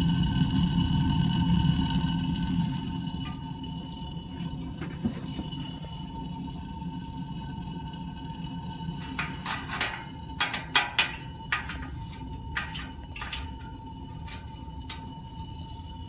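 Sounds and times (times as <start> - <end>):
furnace running: 0.0 - 16.0
metallic clinks and clanks: 9.0 - 15.4.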